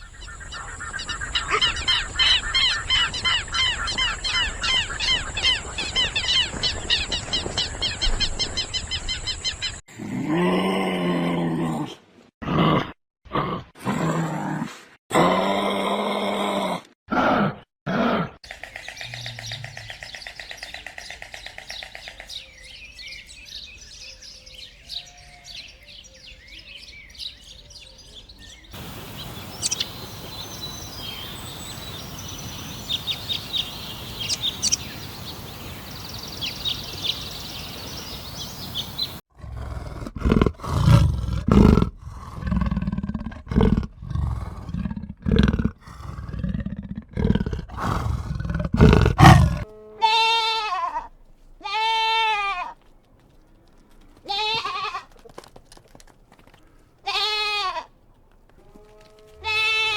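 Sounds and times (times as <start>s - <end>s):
loud low animal calls: 0.0s - 6.4s, 28.7s - 39.2s, 48.8s - 50.2s
birds chirping: 0.0s - 9.8s, 18.5s - 39.2s
steady hiss: 28.8s - 39.2s.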